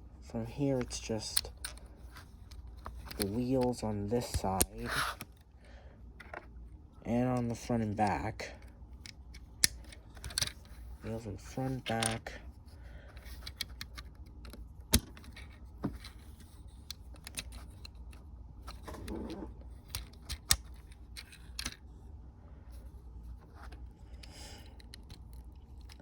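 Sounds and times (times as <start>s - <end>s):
plastic pieces clicking and rattling: 0.8s - 5.3s, 9.0s - 10.8s, 11.7s - 12.3s, 13.2s - 21.9s, 23.6s - 26.0s
sharp plastic snaps: 9.0s - 10.6s, 19.8s - 21.8s.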